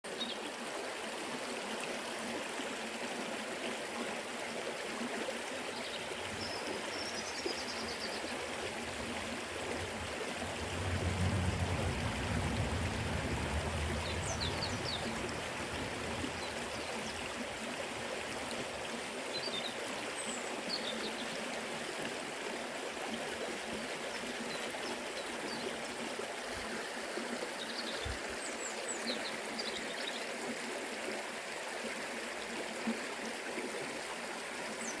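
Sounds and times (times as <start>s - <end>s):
river water rushing: 0.5s - 29.5s
low rumble: 9.4s - 16.8s.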